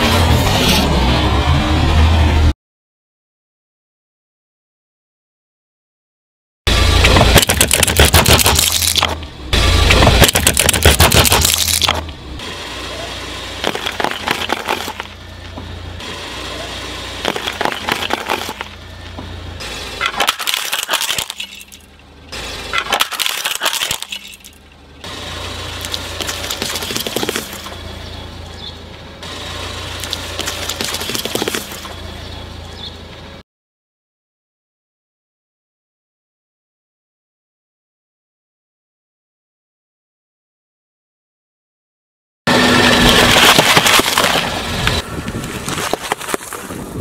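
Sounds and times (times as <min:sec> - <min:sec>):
plastic bottle bursting: 0:07.2 - 0:09.1, 0:10.2 - 0:12.0.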